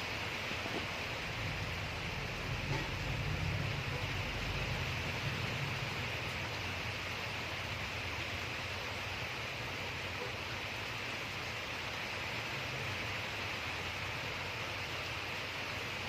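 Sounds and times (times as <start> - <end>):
storm rain: 0.0 - 16.0
wind: 0.0 - 16.0.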